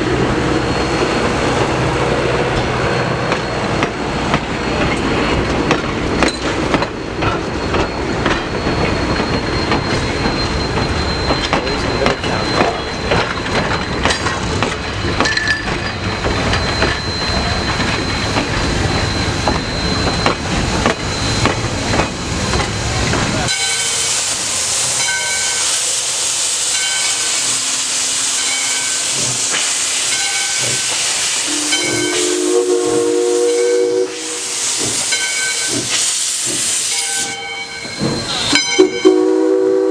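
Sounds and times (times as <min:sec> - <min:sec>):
train rumble and wheel clatter: 0:00.0 - 0:39.9
locomotive chime whistle: 0:06.2 - 0:22.0, 0:23.4 - 0:29.2, 0:30.1 - 0:36.0, 0:36.8 - 0:39.9
steam hissing: 0:15.8 - 0:39.9.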